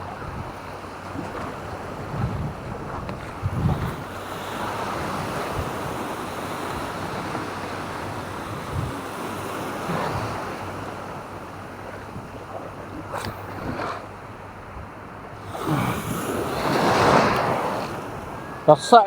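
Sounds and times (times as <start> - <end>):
sea waves washing onto shore: 0.0 - 19.0
wind buffeting microphone: 0.0 - 19.0.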